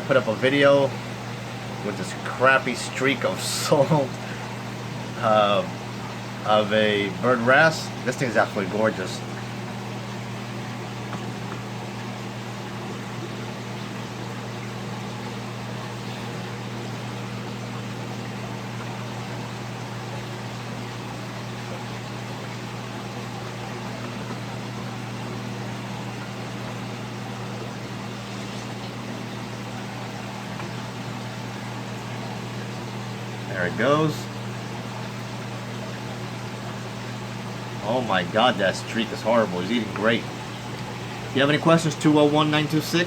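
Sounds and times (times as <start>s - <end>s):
aquarium pumps humming: 0.0s - 43.0s
water hissing: 23.3s - 34.4s.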